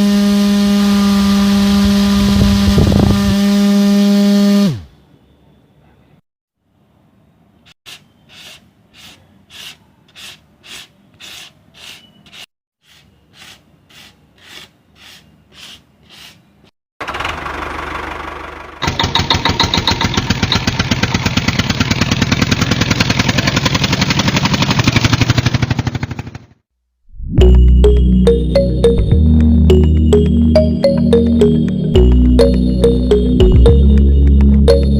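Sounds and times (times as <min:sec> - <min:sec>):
small electric motor rattling: 0:17.0 - 0:26.3.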